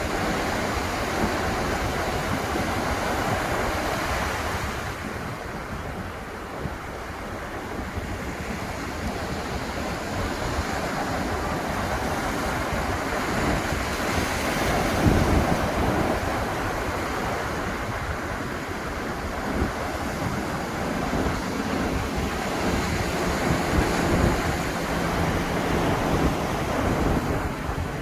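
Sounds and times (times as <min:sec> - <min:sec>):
ocean surf washing ashore: 0:00.0 - 0:28.0
wind buffeting microphone: 0:00.0 - 0:28.0
wave breaking: 0:09.2 - 0:28.0.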